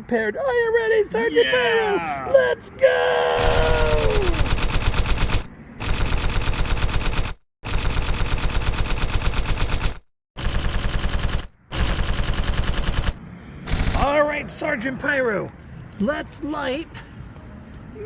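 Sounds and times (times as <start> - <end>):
rapid popping bangs: 3.4 - 14.1.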